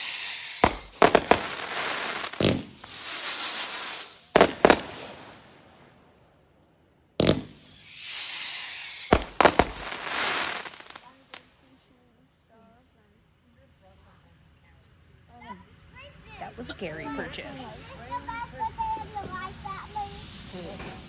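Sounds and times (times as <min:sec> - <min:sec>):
firework crackling hiss: 0:00.0 - 0:06.1, 0:07.2 - 0:11.6, 0:17.0 - 0:21.0
whistling firework shell: 0:00.0 - 0:06.1, 0:07.2 - 0:11.4
firework bangs: 0:00.0 - 0:06.2, 0:07.2 - 0:11.5.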